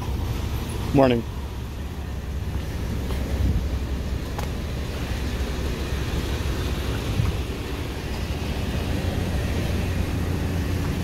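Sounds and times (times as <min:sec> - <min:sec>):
cars idling: 0:00.0 - 0:11.0.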